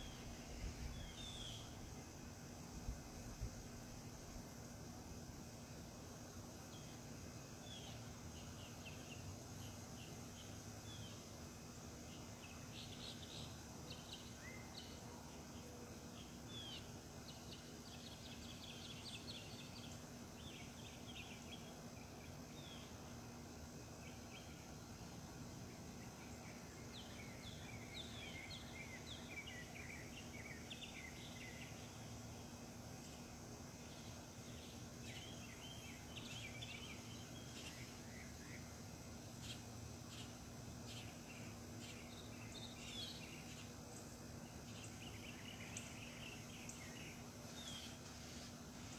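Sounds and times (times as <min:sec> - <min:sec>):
faint high hiss: 0:00.0 - 0:48.9
steady low hum: 0:00.0 - 0:48.9
songbirds chirping and singing: 0:25.8 - 0:32.3, 0:33.0 - 0:48.9.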